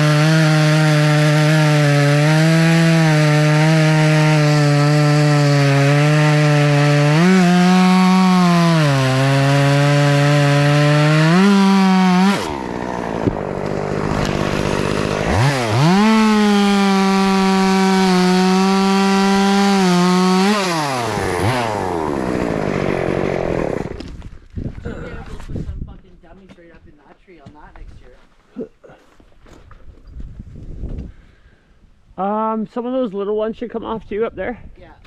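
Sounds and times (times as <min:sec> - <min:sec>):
chainsaw idling: 0:00.0 - 0:24.0
chainsaw cutting wood: 0:00.0 - 0:24.5.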